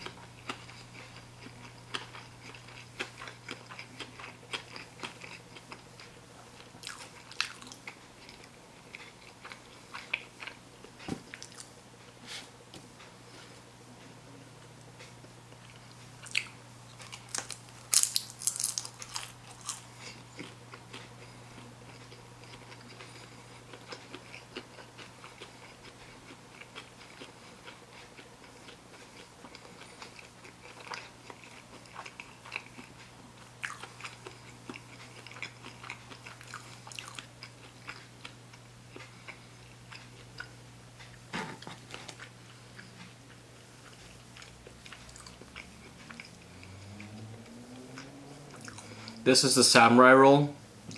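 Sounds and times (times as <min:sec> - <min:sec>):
steady low hum: 0:00.0 - 0:50.9
chewing with wet mouth clicks: 0:00.1 - 0:10.6, 0:14.9 - 0:41.2, 0:42.0 - 0:49.2.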